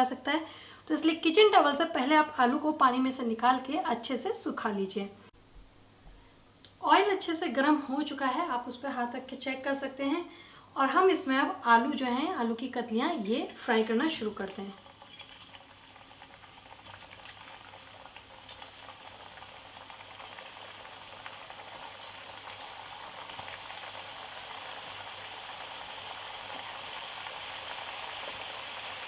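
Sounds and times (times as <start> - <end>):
potato slices sizzling in oil: 12.0 - 29.0.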